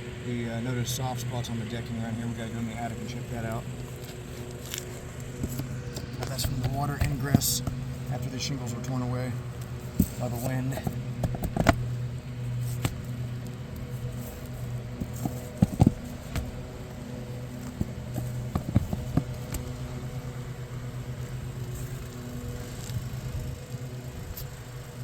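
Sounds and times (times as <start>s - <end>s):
engine humming: 0.0s - 25.0s
hand tools knocking on shingles: 5.4s - 7.9s, 9.8s - 12.0s, 13.9s - 16.7s, 17.6s - 19.7s.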